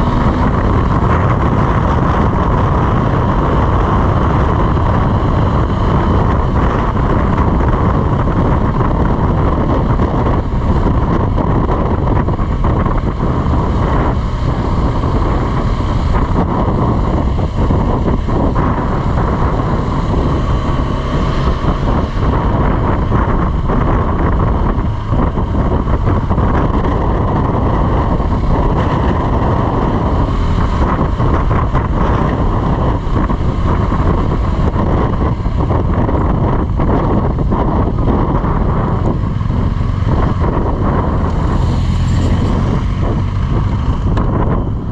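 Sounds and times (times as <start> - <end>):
motorcycle engine running: 0.0 - 44.9
wind rush over microphone: 0.0 - 44.9.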